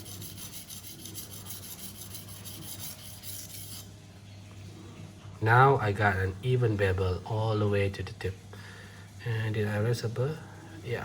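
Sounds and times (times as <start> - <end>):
knife scraping on whetstone: 0.0 - 3.9.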